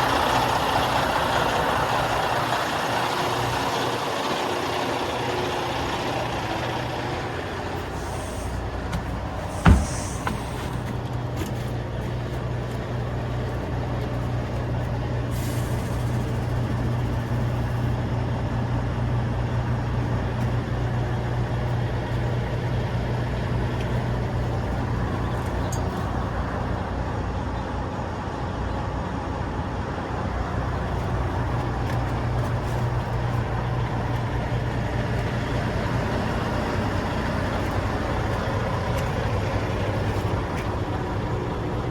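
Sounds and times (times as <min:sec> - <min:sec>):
truck diesel engine idling: 0:00.0 - 0:28.2, 0:29.0 - 0:41.9
high hissing: 0:09.4 - 0:10.8.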